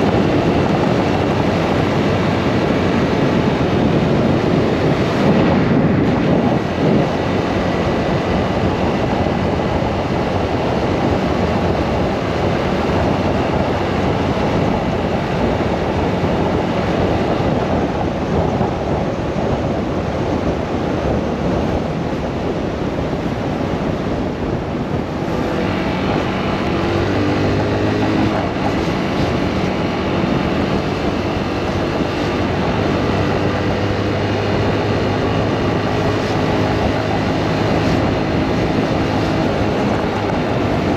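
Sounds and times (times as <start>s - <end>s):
motorcycle engine running: 0.0s - 40.9s
wind rushing on microphone: 0.0s - 40.9s.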